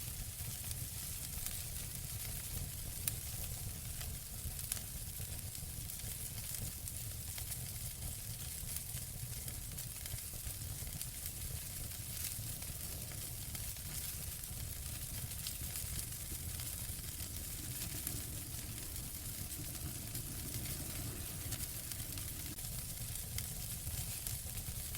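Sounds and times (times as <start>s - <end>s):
fire crackles and pops: 0.0s - 24.9s
wood fire hissing: 0.0s - 24.9s
low rumble: 15.0s - 22.8s.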